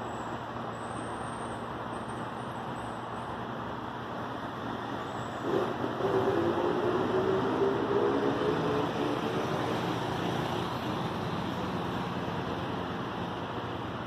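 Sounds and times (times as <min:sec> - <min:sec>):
electric train rumbling: 0:03.3 - 0:14.0.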